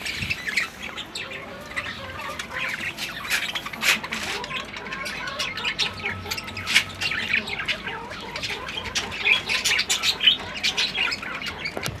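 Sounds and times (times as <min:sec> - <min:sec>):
birds squawking and chirping: 0:00.0 - 0:12.0.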